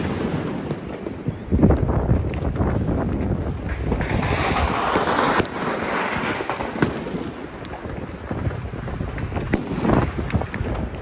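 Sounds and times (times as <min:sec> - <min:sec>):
firework bang: 0:00.0 - 0:01.1, 0:02.3 - 0:07.4, 0:08.3 - 0:10.8
distant fireworks popping and crackling: 0:00.0 - 0:11.0
wind on microphone: 0:00.0 - 0:11.0.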